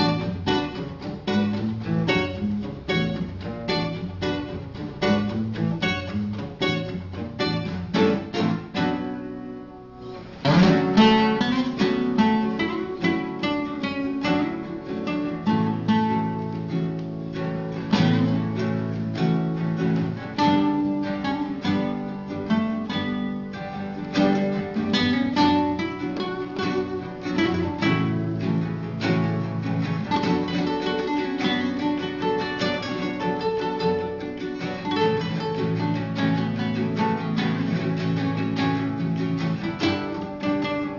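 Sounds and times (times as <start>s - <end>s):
acoustic guitar playing: 0.0s - 40.9s.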